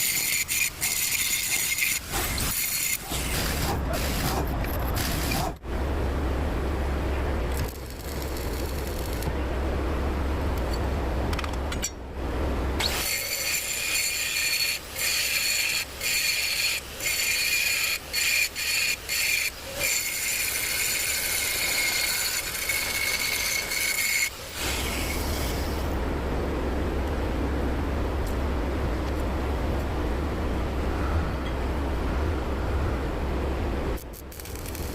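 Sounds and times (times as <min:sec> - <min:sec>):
welding arc crackling and hissing: 0:00.0 - 0:05.6, 0:07.5 - 0:09.3, 0:12.8 - 0:26.0, 0:34.0 - 0:34.9
steady low hum: 0:00.0 - 0:34.9.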